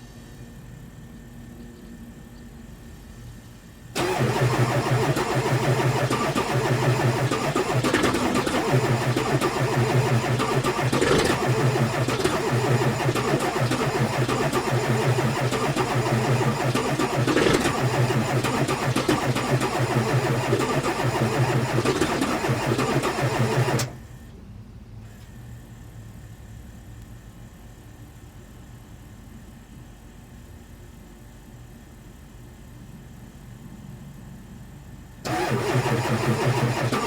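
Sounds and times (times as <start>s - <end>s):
faint steady background noise: 0.0s - 37.0s
diesel engine running: 4.0s - 24.1s, 35.3s - 37.0s.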